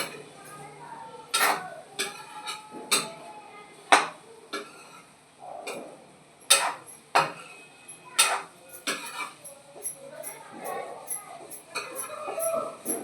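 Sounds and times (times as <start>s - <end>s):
metal utensils clinking on pan: 0.0s - 0.7s, 1.3s - 3.2s, 4.0s - 5.1s, 6.4s - 13.0s.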